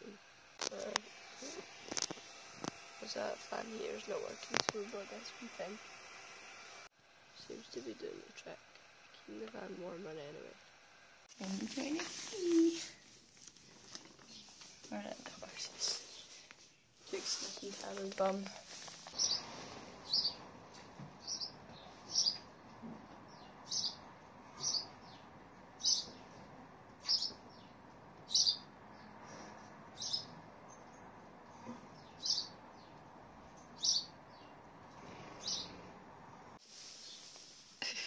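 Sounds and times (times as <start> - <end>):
small bird chirping: 14.0 - 14.6, 19.1 - 20.4, 21.2 - 22.5, 23.3 - 34.6, 35.4 - 35.8.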